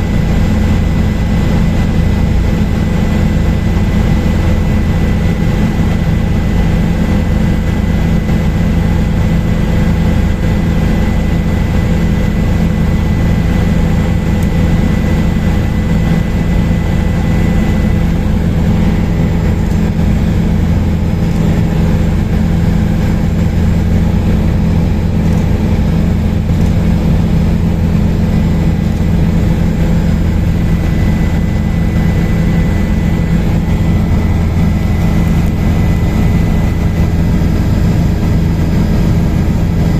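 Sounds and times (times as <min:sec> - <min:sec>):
helicopter rotor drone: 0:00.0 - 0:39.9.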